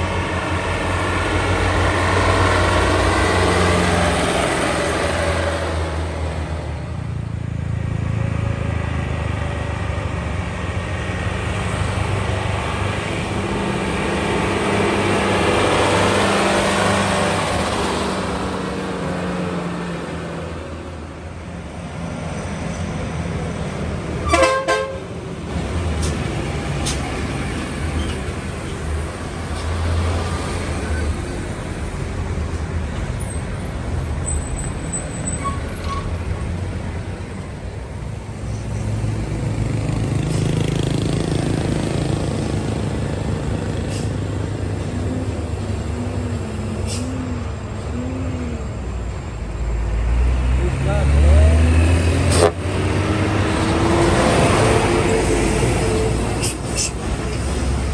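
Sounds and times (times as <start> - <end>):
diesel truck engines rumbling: 0.0 - 57.9
truck horn toot: 24.2 - 25.1.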